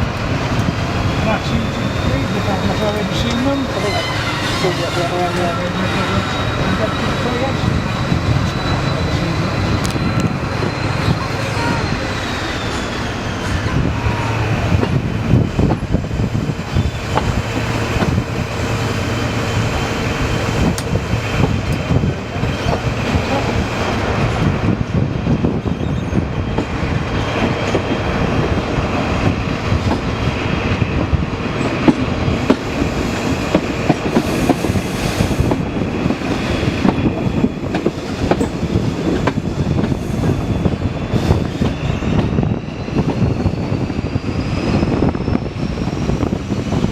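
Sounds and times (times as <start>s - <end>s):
train wheels clattering on rails: 14.6s - 44.0s.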